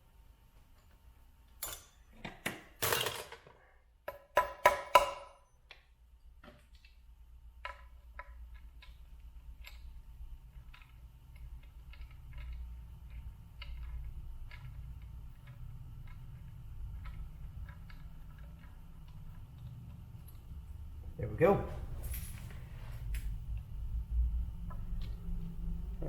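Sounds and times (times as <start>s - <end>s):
hammer tapping metal: 4.1s - 5.4s.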